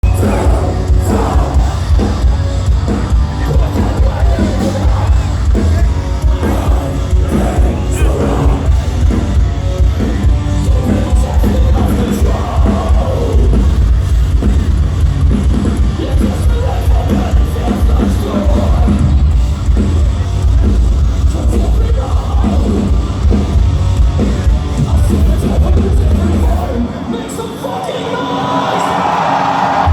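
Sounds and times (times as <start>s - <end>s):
person singing: 0.0s - 9.2s, 10.6s - 13.7s
fast drums: 0.0s - 27.4s, 29.7s - 29.9s
metal band playing live: 0.0s - 29.9s.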